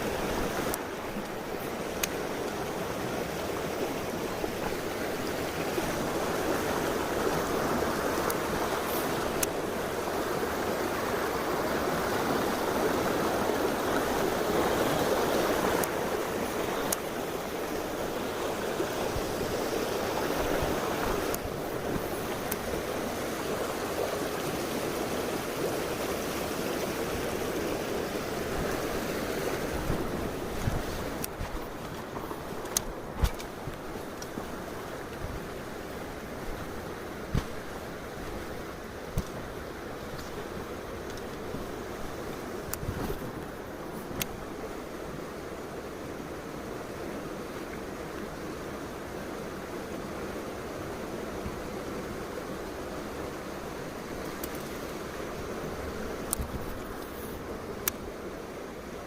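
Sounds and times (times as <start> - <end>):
stream water running: 0.0 - 59.0
faint clicks: 41.0 - 41.3, 54.2 - 54.8.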